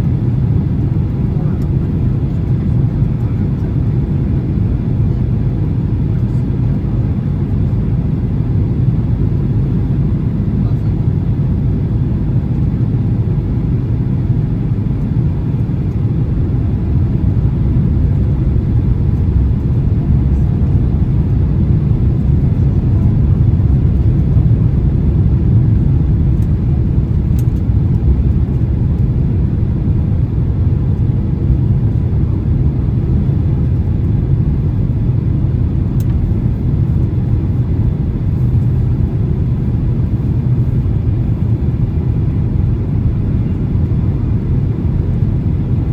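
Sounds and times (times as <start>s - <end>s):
aircraft cabin engine rumble: 0.0s - 45.9s.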